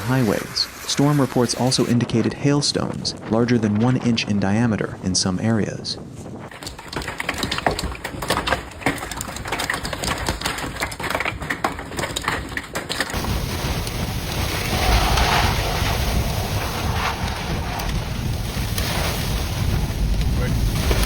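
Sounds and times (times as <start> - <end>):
heavy rain: 0.0 - 1.9, 13.2 - 21.0
wind buffeting microphone: 0.0 - 8.2, 13.2 - 21.0
hailstones striking hard surface: 6.5 - 21.0.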